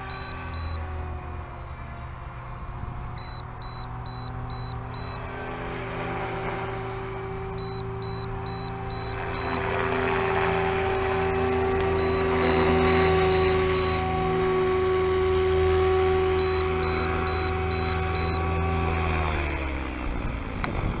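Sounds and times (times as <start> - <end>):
quick high-pitched beeps: 0.0 - 0.8, 3.2 - 5.2, 7.6 - 9.6, 12.0 - 14.0, 16.4 - 18.4
rc helicopter motor whine: 0.0 - 21.0.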